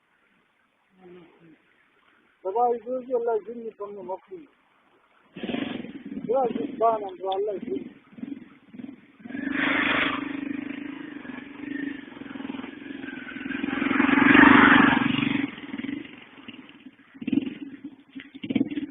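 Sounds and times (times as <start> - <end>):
vehicle engine passing by: 5.3 - 18.9.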